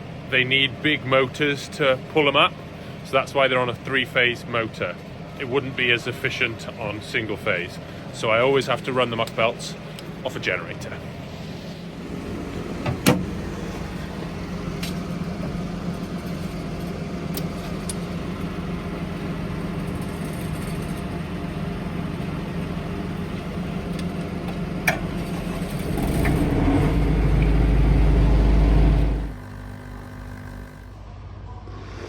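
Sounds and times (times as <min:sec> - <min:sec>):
engine humming: 0:09.2 - 0:31.3.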